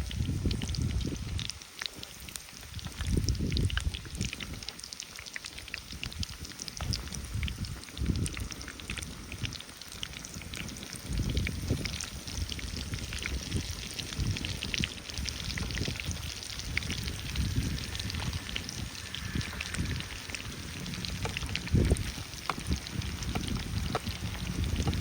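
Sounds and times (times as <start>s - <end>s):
small crackles and ticks: 0.0s - 25.0s
low rumbles: 6.0s - 25.0s.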